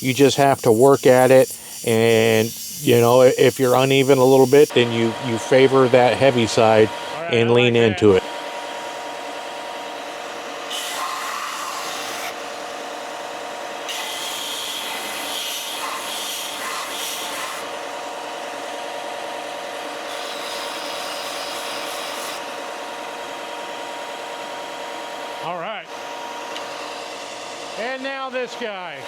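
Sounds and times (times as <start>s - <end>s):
abrasive hissing on wood: 0.0s - 7.3s
belt sander motor hum: 0.0s - 29.0s.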